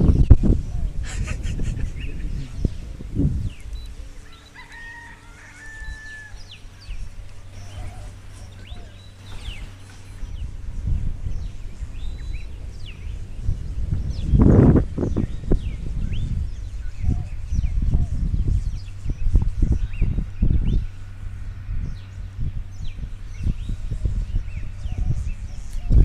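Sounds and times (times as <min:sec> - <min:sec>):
faint steady hum: 0:00.0 - 0:26.0
small birds chirping: 0:00.0 - 0:26.0
rooster crowing: 0:04.2 - 0:09.0.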